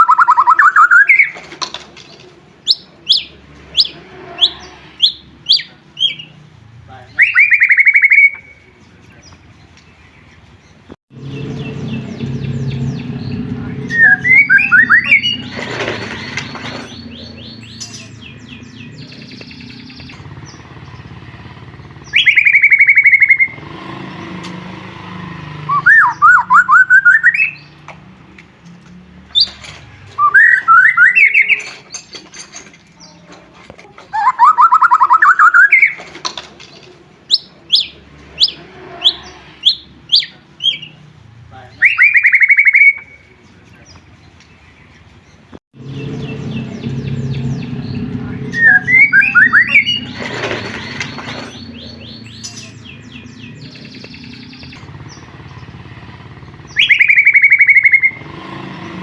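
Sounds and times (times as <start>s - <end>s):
bird singing whistled phrases: 0.0s - 1.4s, 7.1s - 8.7s, 12.6s - 15.7s, 22.1s - 23.6s, 25.7s - 27.7s, 30.2s - 31.7s, 34.1s - 36.0s, 41.7s - 43.3s, 48.5s - 50.3s, 56.6s - 58.2s.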